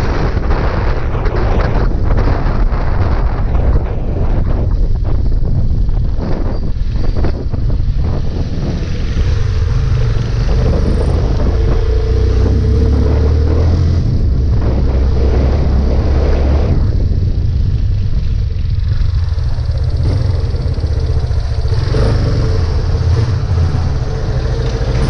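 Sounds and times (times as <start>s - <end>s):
wind on microphone: 0.0s - 25.0s
motorcycle engine running: 4.5s - 25.0s.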